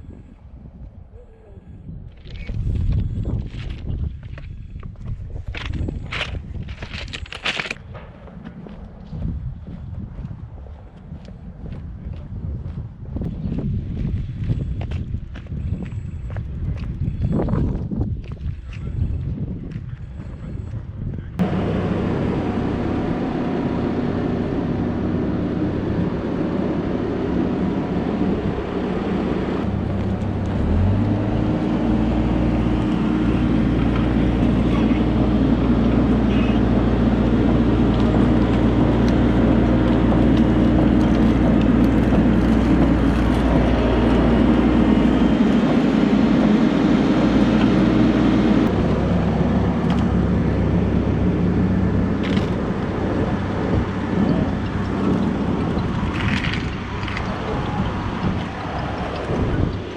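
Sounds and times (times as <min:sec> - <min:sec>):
diesel machinery running: 0:21.4 - 0:59.9.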